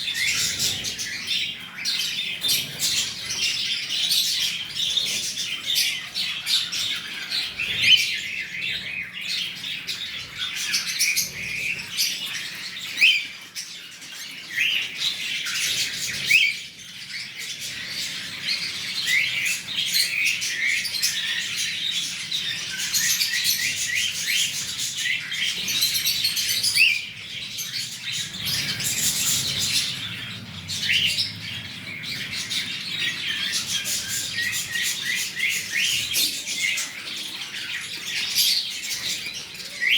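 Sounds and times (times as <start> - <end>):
cockatiel chirping: 6.5 - 8.2, 12.5 - 13.4, 14.5 - 16.7.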